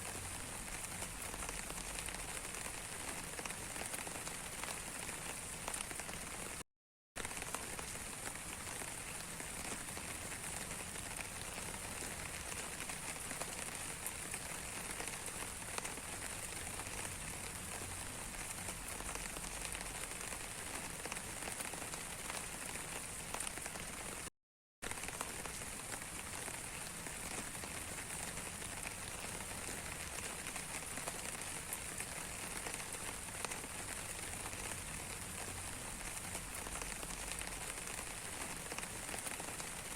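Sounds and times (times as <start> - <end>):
steady rain falling: 0.0 - 6.6, 7.2 - 39.9.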